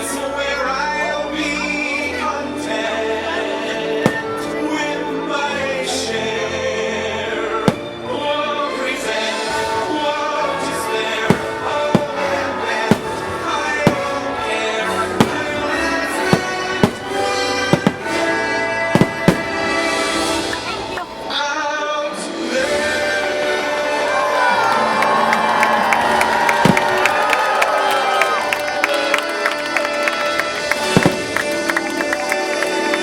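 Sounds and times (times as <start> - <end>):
orchestral music with choir: 0.0 - 33.0
firework bangs: 4.0 - 4.9, 7.6 - 8.3, 9.7 - 20.9, 26.1 - 27.4, 30.4 - 32.3.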